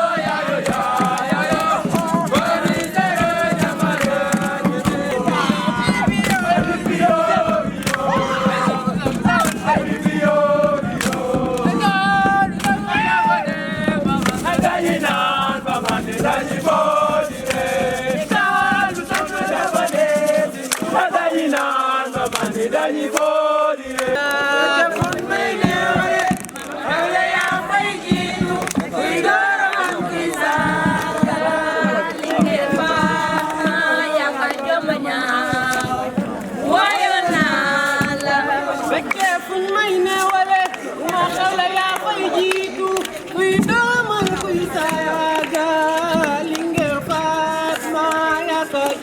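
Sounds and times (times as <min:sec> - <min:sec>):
sharp beats keeping time: 0:00.0 - 0:39.1
young voices chanting and singing: 0:00.0 - 0:49.0.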